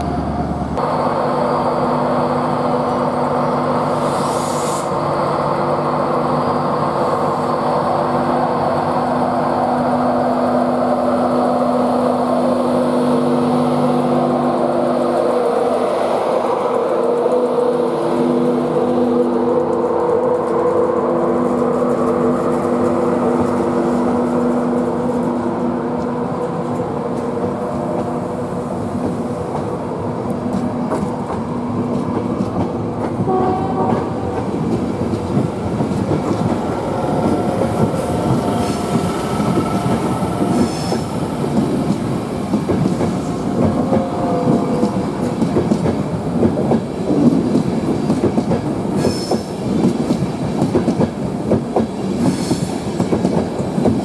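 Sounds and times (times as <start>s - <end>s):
train wheels clattering over rail joints: 30.4s - 54.0s.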